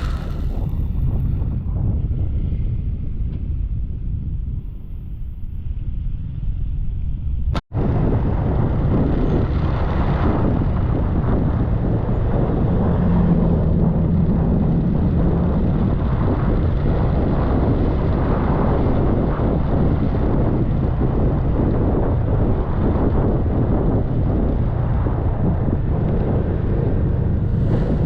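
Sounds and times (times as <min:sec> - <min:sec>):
motor scooter engine hum: 0:00.0 - 0:01.7
wind noise: 0:00.0 - 0:28.0.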